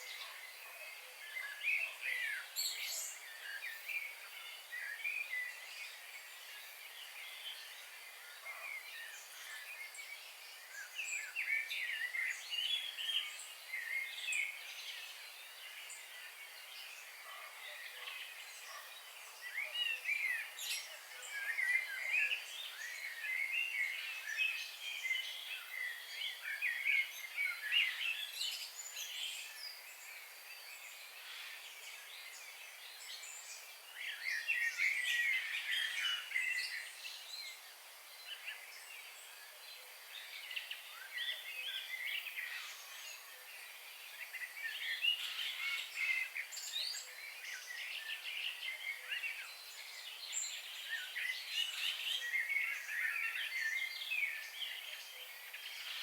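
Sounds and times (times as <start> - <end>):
faint background hiss: 0.0 - 56.0
birds chirping and trilling: 44.0 - 56.0.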